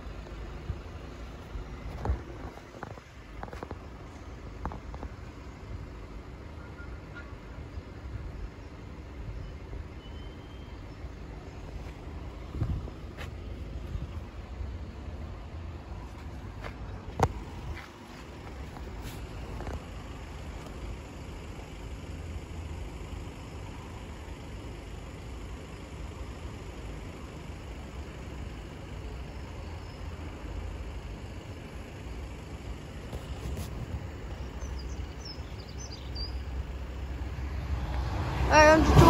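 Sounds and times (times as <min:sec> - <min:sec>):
bird chirps: 0:09.4 - 0:11.0, 0:34.4 - 0:36.5
train rumble: 0:32.6 - 0:39.0.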